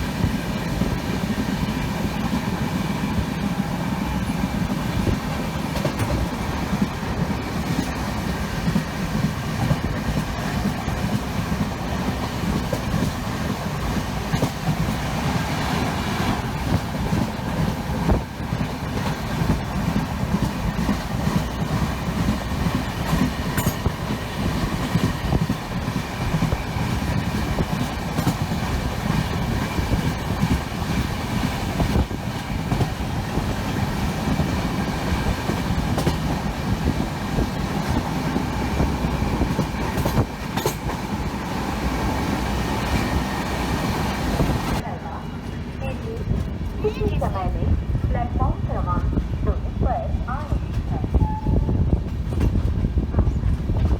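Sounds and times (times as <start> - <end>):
train rumble: 0.0 - 53.9
wheel clatter over track: 4.3 - 44.8.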